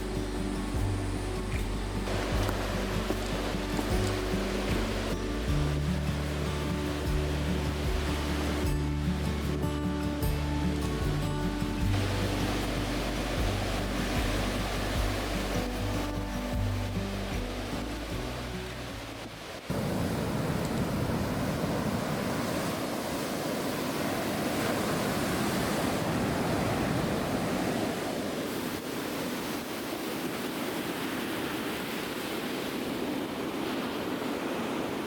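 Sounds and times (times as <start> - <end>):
background music: 0.0 - 19.5
waves breaking on shore: 0.0 - 35.0.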